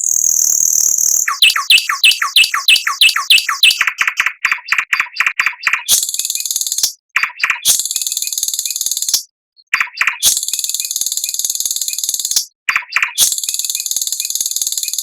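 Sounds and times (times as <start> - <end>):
songbird buzzy trills and whistles: 0.0 - 9.1.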